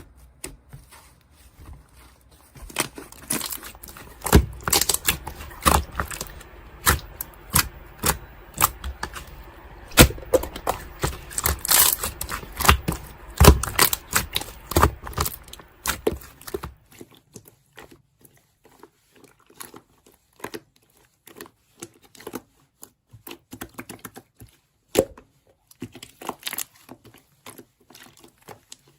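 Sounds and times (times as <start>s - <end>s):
slime clicking and popping: 3.3s - 16.7s.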